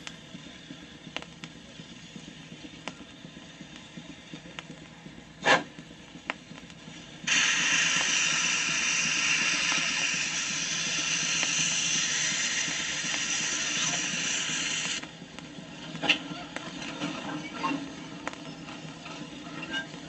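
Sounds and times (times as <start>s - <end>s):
loud steady hiss: 0.0s - 15.4s.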